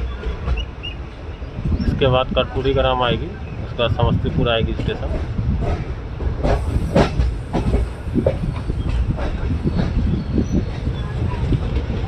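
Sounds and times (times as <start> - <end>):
train rumbling along track: 0.0 - 12.0
wheels clicking over rail joints: 4.7 - 12.0.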